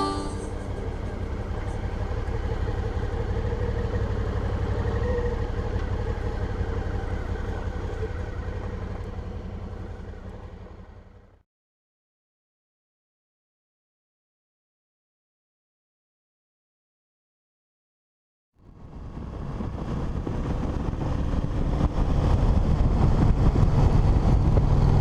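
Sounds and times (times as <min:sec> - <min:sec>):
motorcycle engine and road rumble: 0:00.0 - 0:11.4, 0:18.6 - 0:25.0.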